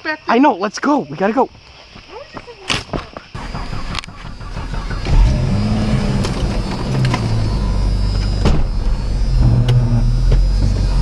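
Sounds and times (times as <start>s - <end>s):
vehicle engine revving: 3.4s - 11.0s.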